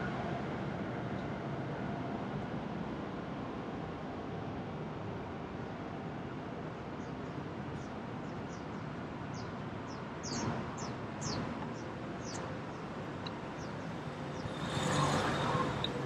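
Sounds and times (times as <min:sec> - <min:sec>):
bird chirping: 0:09.3 - 0:16.0
vehicle approaching: 0:14.0 - 0:16.0.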